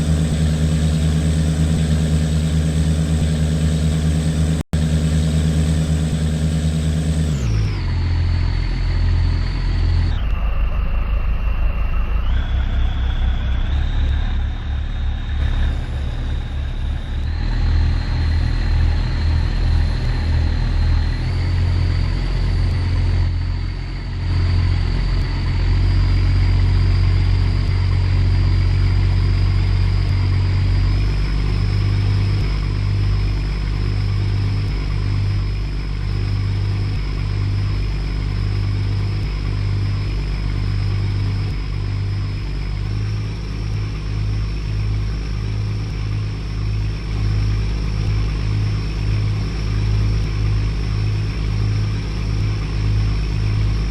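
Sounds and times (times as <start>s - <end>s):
boat engine rumble: 0.0s - 53.9s
high engine whine: 0.0s - 53.9s.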